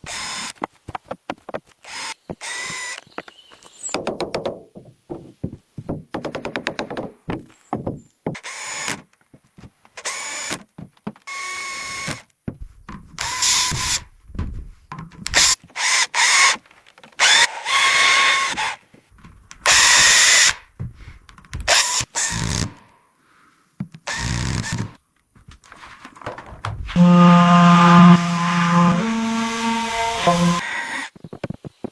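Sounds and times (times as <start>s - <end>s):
power drill whining: 0.0s - 0.6s, 1.8s - 3.2s, 11.3s - 12.2s, 13.2s - 14.1s, 15.4s - 16.6s, 17.2s - 18.8s, 19.6s - 20.6s, 21.7s - 22.8s, 24.1s - 25.0s, 26.9s - 31.1s.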